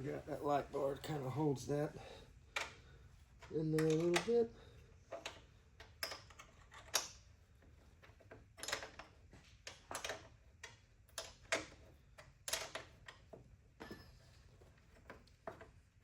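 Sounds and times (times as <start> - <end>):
metal parts clicking and knocking: 3.4 - 4.4, 5.1 - 7.3, 8.0 - 15.8.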